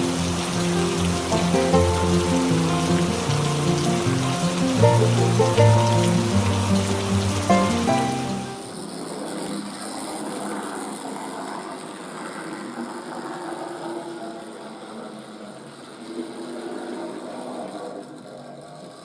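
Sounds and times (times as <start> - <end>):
model locomotive motor whirring: 0.0 - 5.4.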